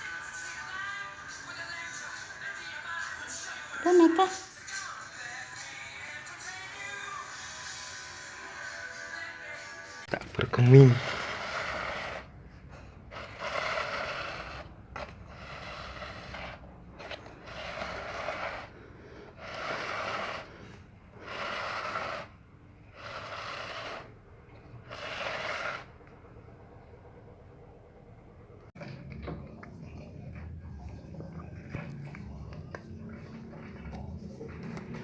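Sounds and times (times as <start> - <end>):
cat breathing: 10.4 - 24.2.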